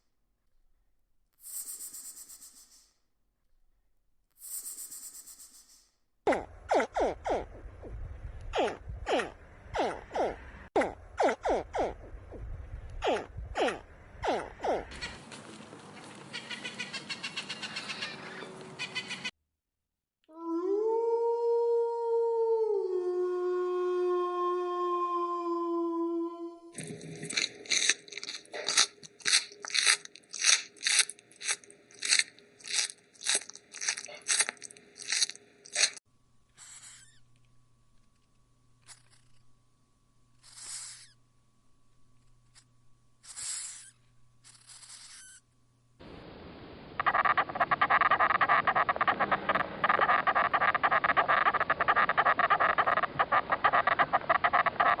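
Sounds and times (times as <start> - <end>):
animal chewing crunchy food: 26.8 - 36.0, 47.0 - 55.0.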